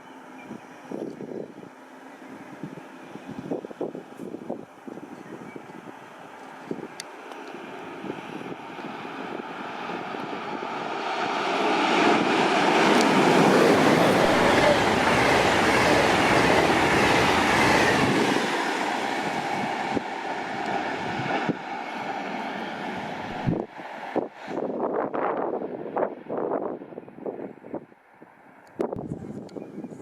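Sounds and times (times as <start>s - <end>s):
train wheels rumbling on rails: 6.2s - 26.2s.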